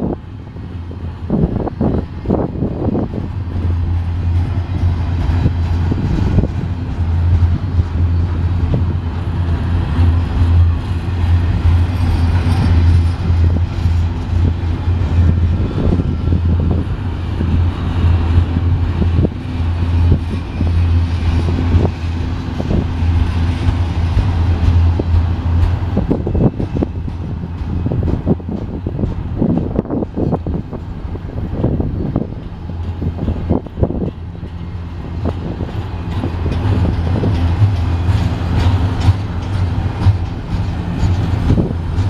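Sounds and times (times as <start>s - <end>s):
steel wheels rumbling on rail: 0.0s - 42.0s
wheels clicking and knocking: 31.5s - 42.0s.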